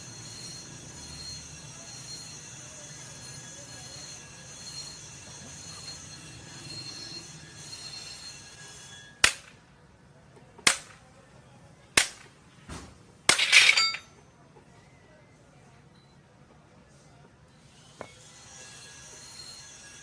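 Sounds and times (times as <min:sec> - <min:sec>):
clattering metal strike ringing: 0:13.3 - 0:14.1.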